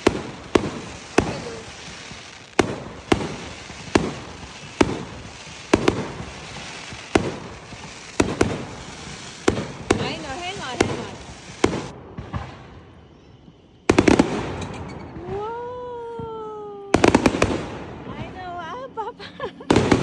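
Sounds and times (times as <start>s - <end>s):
fireworks banging: 0.0s - 18.8s, 19.6s - 20.0s.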